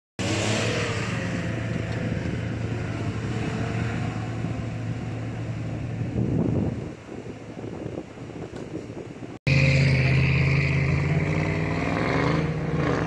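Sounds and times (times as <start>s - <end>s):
car engine running under load: 0.2s - 10.2s.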